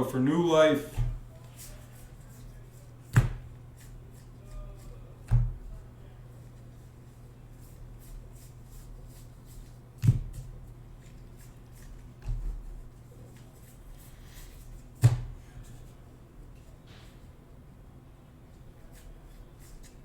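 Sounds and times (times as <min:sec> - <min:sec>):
steady low hum: 0:00.0 - 0:20.0
dull thump: 0:03.1 - 0:03.6, 0:15.0 - 0:15.4.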